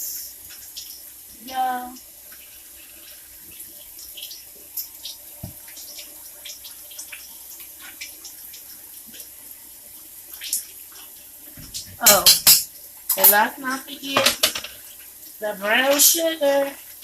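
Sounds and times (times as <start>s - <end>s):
faint hiss: 0.0s - 0.5s.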